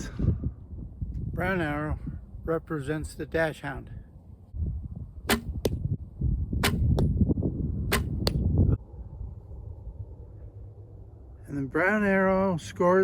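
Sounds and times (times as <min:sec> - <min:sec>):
low rumble: 0:04.5 - 0:13.0
arrow striking target: 0:05.2 - 0:05.8, 0:06.6 - 0:07.1, 0:07.9 - 0:08.5.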